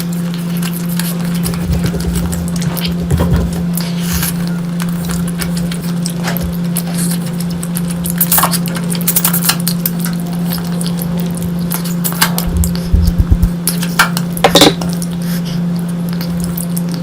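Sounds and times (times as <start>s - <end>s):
low steady hum: 0.0s - 17.0s
dishes and cutlery clinking: 14.4s - 14.9s.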